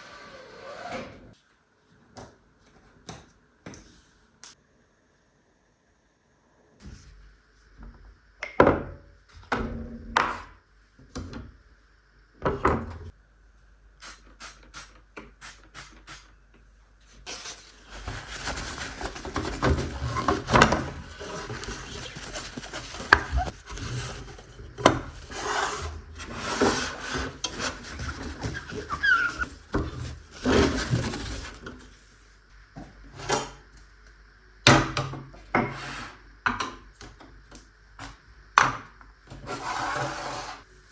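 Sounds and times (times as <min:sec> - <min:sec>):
rubbing and scraping: 0:17.8 - 0:31.7.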